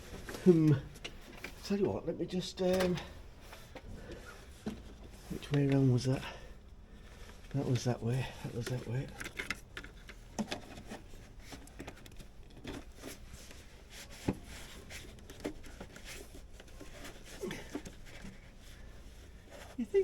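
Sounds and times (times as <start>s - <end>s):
light clicks and taps: 2.6s - 5.9s.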